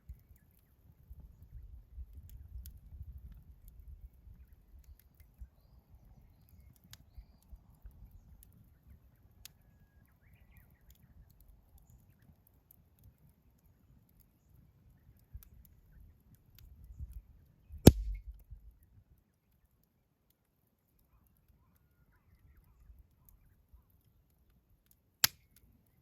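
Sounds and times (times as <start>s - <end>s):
campfire crackling: 0.0s - 26.0s
fire pops and ticks: 2.0s - 5.4s, 17.9s - 18.8s, 25.2s - 25.7s.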